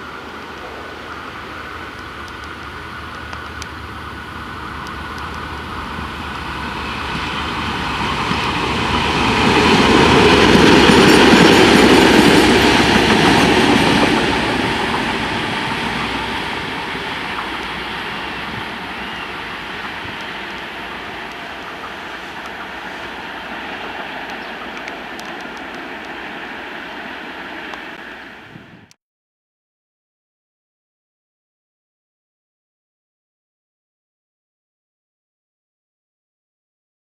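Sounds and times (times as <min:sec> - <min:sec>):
diesel locomotive passing: 0:00.0 - 0:28.9.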